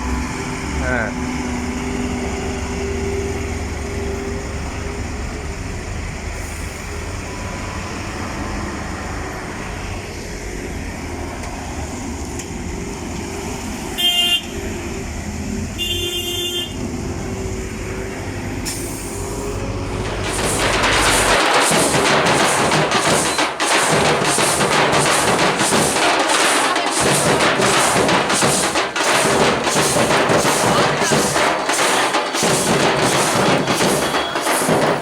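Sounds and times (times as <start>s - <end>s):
diesel lorry engine droning: 0.0s - 15.8s
vehicle horn blasts: 14.0s - 14.6s, 15.8s - 16.8s.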